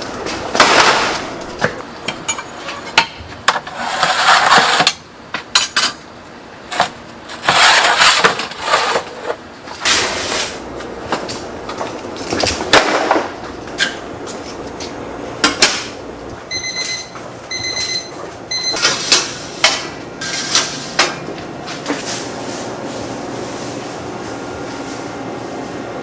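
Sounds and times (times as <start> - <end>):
electronic machine beeps: 16.5 - 19.0.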